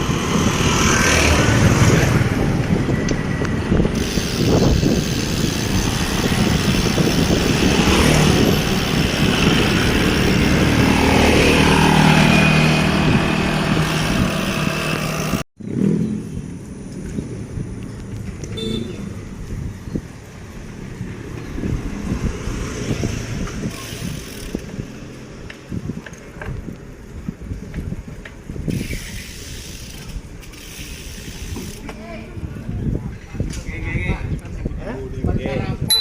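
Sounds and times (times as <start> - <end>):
motorcycle passing: 0.0 - 26.0
passing traffic: 0.0 - 36.0
wind on microphone: 0.0 - 36.0.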